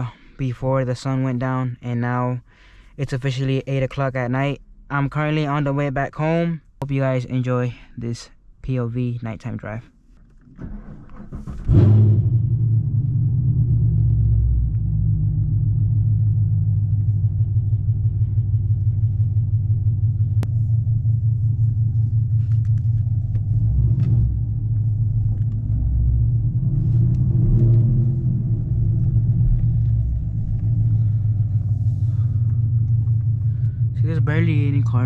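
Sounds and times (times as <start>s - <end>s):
car exhaust low drone: 11.1s - 35.0s.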